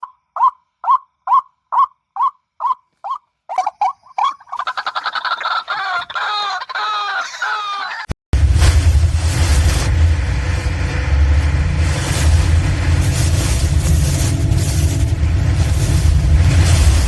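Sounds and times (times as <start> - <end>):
waterhen clucking calls: 0.0 - 8.2
loud low rumbling noise: 8.4 - 17.0.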